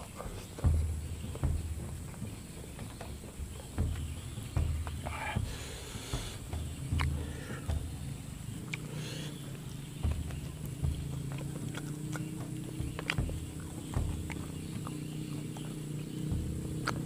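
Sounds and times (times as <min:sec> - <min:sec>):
mouth clicks and smacks: 0:00.0 - 0:17.0
person chewing food: 0:03.8 - 0:17.0.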